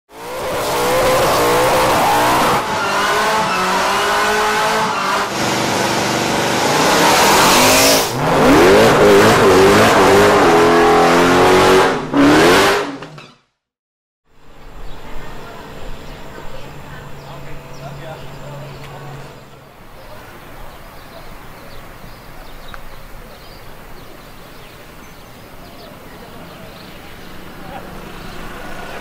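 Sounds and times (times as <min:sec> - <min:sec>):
car engines revving hard: 0:00.1 - 0:13.1, 0:23.8 - 0:29.0
tyres spinning in burnout: 0:00.2 - 0:13.3.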